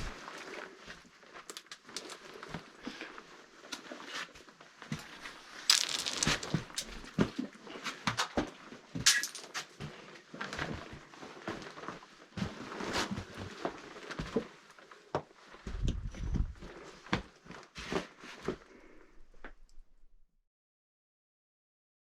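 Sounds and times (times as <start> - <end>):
footsteps crunching: 5.7 - 7.2.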